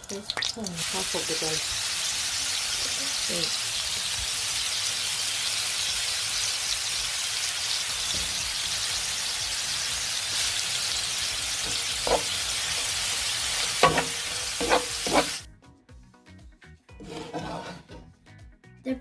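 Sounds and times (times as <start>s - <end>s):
prawns sizzling in hot oil: 0.0s - 15.5s
utensil knocking against wok: 11.6s - 12.4s, 13.7s - 15.4s.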